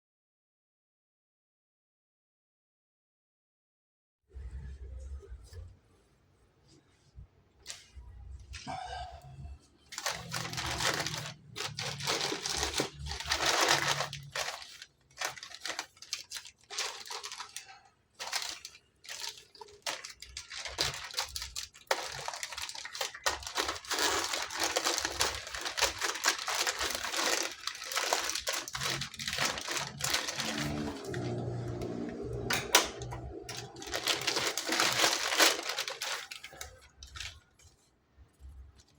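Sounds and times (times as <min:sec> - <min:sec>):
packaging crinkling and tearing: 0:09.9 - 0:37.9.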